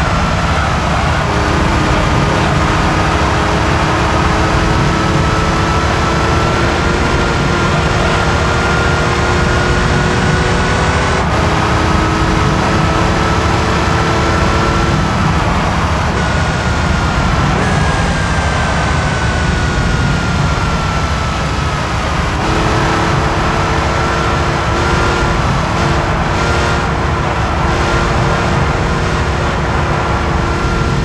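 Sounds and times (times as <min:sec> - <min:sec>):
car engine at speed: 0:00.0 - 0:31.0.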